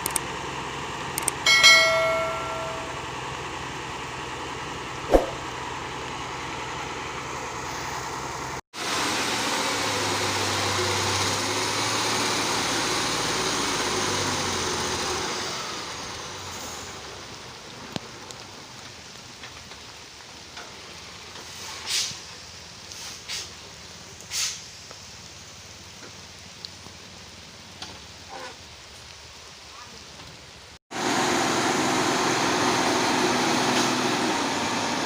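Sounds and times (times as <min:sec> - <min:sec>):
heavy truck passing: 0:00.3 - 0:17.8, 0:31.0 - 0:35.0
brief hisses: 0:21.5 - 0:22.2, 0:24.3 - 0:24.7.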